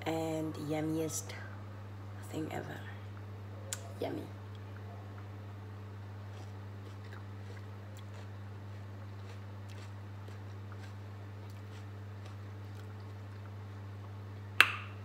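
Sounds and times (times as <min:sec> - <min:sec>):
steady low hum: 0:00.0 - 0:15.0
person chewing food: 0:06.2 - 0:13.7.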